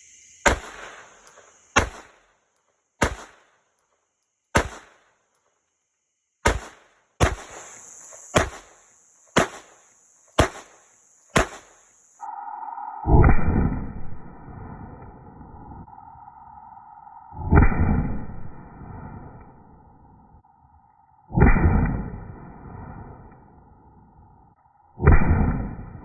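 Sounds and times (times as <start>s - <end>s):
pistol shots: 0.4s - 2.3s, 3.0s - 3.6s, 4.6s - 5.2s, 6.4s - 7.7s, 8.3s - 9.8s, 10.4s - 11.8s
steady electronic tone: 12.1s - 26.0s.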